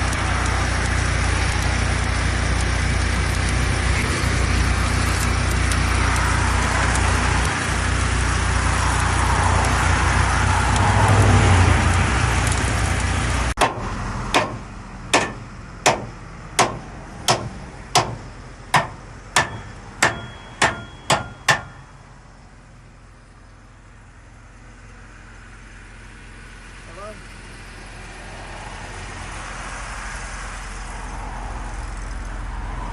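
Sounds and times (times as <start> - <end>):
road traffic noise: 0.0 - 32.9
hammer striking metal: 13.6 - 21.9.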